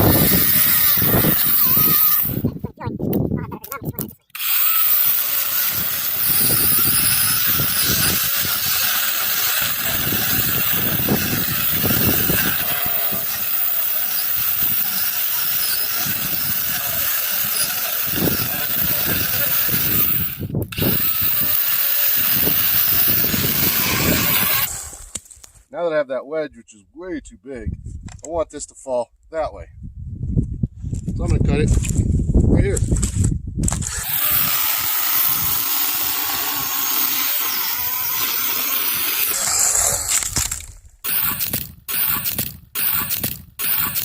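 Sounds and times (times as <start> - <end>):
electric chainsaw cutting wood: 0.0 - 2.5, 4.3 - 25.2, 33.7 - 44.0.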